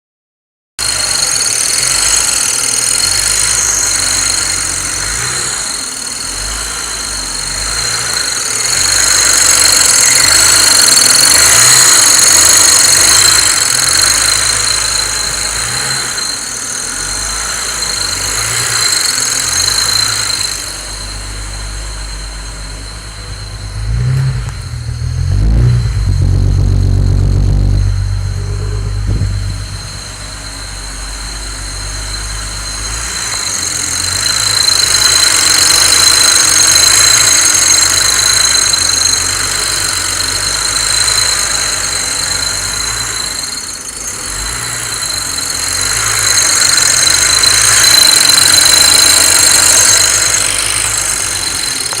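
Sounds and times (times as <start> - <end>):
high-pitched engine whine: 0.8 - 52.0
engine hiss: 0.9 - 52.0
deep engine rumble: 19.4 - 34.6.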